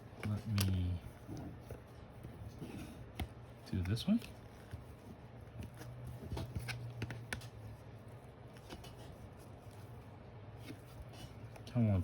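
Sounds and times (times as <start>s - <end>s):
low steady hum: 0.0s - 12.0s
cards handled and set down: 3.0s - 7.7s.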